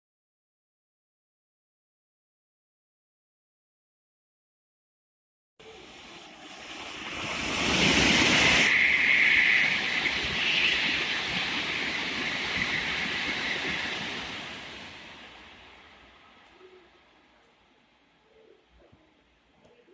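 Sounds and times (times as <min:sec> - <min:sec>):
high-speed train passing: 0:05.6 - 0:18.6.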